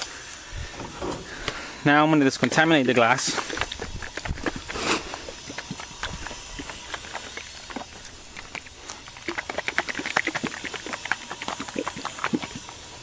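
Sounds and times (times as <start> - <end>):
spray hiss: 3.2 - 13.0.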